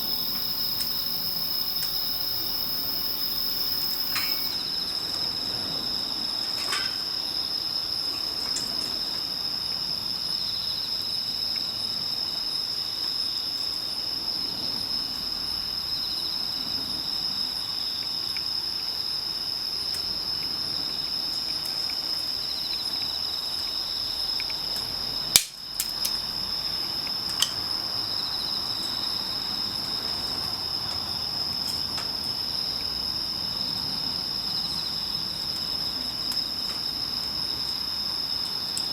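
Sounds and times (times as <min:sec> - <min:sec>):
insects chirring: 0:00.0 - 0:38.9.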